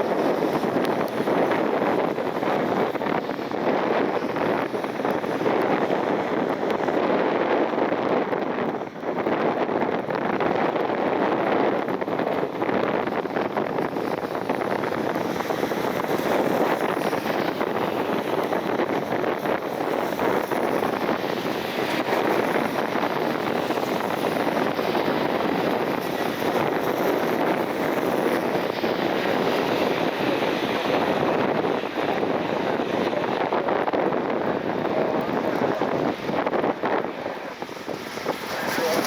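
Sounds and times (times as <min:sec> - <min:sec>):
gusty wind on microphone: 0:00.0 - 0:39.0.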